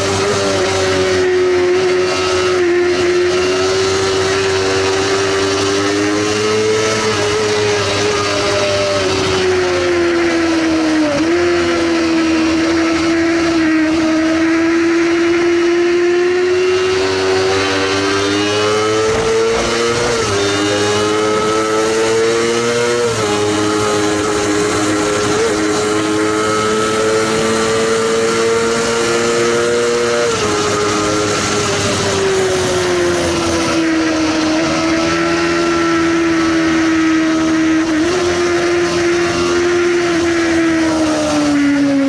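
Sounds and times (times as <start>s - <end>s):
motorcycle engine at high revs: 0.0s - 42.0s.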